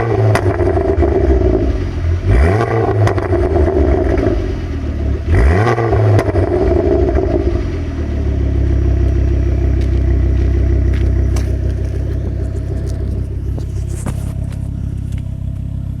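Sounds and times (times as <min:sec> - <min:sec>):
car engine revving and idling: 0:00.0 - 0:16.0
exhaust pops and cracks: 0:00.3 - 0:01.2, 0:09.0 - 0:16.0.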